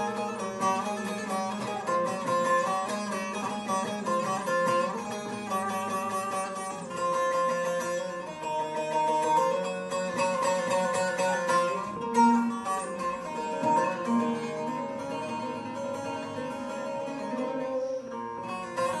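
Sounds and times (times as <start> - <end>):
plucked string instrument melody: 0.0 - 19.0.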